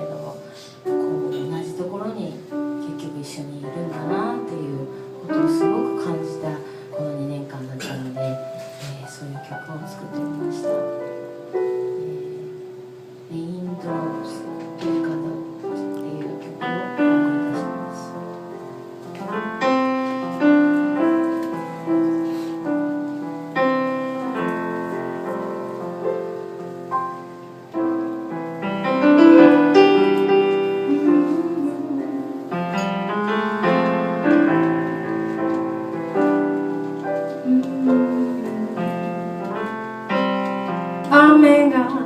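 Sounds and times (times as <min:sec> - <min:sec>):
piano playing: 0:00.0 - 0:42.0.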